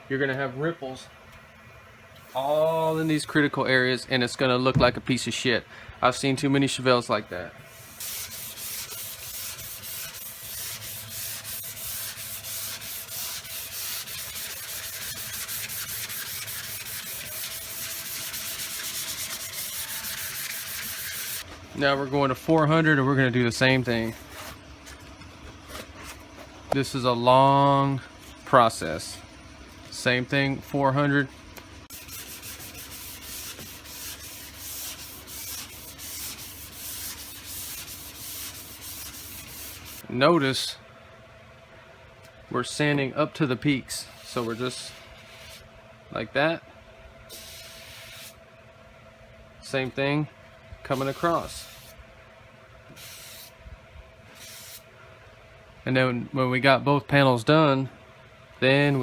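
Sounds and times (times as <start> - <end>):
sandpaper rubbing on panel: 7.7 - 21.4, 31.9 - 40.0, 44.1 - 45.6, 47.3 - 48.4, 50.9 - 52.0.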